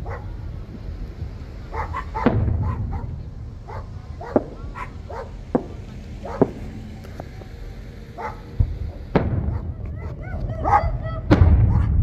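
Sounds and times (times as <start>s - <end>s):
dog barking: 0.0s - 0.4s, 1.7s - 5.4s, 6.2s - 6.6s, 8.2s - 11.0s
deep firework boom: 0.0s - 12.0s
fireworks exploding: 0.0s - 12.0s.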